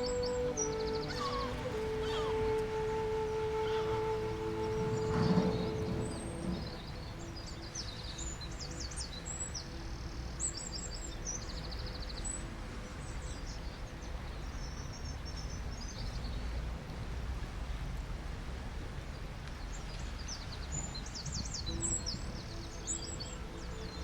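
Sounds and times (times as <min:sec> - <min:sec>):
birds chirping and trilling: 0:00.0 - 0:09.8
low background rush: 0:00.0 - 0:14.3.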